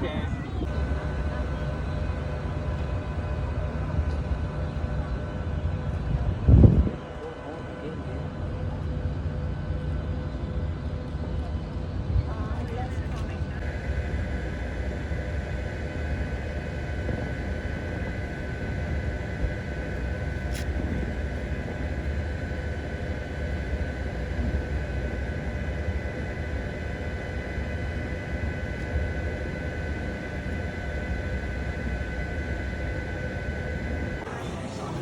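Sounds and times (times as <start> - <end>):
constant high whine: 0.0 - 35.0
low engine rumble: 0.0 - 35.0.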